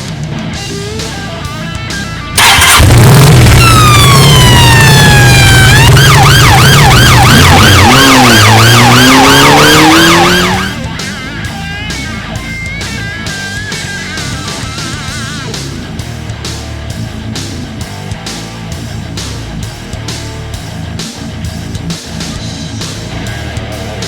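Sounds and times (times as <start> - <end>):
police siren wailing and yelping: 2.4 - 11.0
engine running: 2.4 - 21.2.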